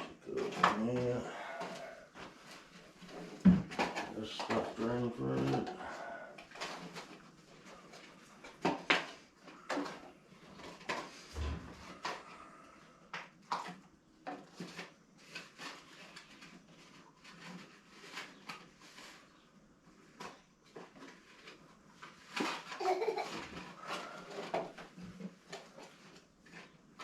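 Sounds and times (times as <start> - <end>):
objects clinking and rattling: 0.0 - 12.3.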